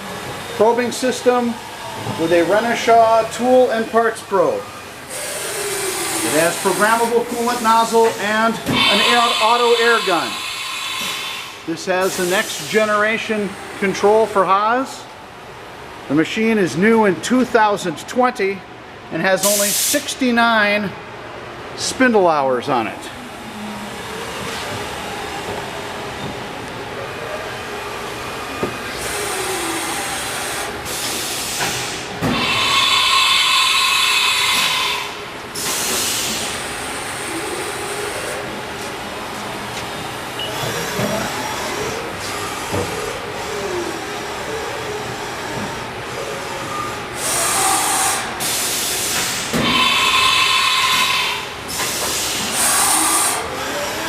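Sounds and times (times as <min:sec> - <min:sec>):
loud hissing: 0:07.8 - 0:12.7.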